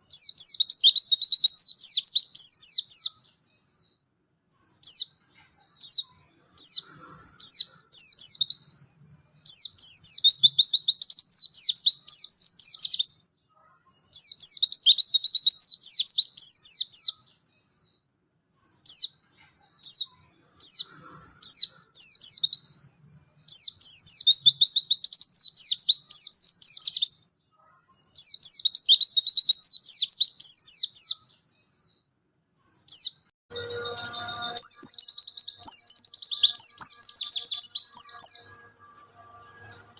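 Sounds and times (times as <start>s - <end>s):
bird singing high twittering notes: 0.0s - 13.2s, 32.6s - 39.9s.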